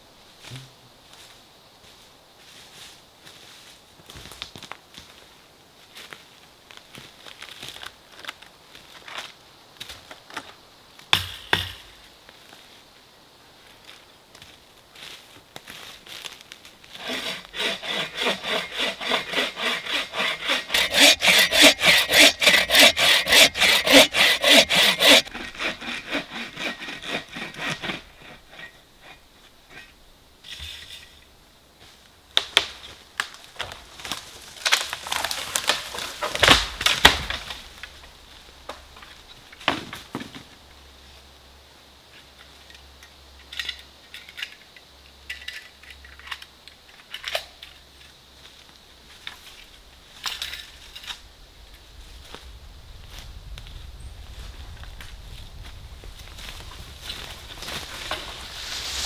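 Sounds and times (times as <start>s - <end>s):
bow saw cutting wood: 17.0s - 29.2s, 57.6s - 59.0s
wood cracking and snapping: 32.4s - 38.0s.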